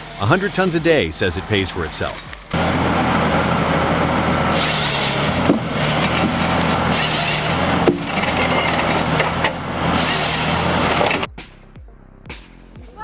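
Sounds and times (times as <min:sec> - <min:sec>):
machine engine drone: 0:01.5 - 0:11.3
logs being cut and split: 0:02.1 - 0:11.3.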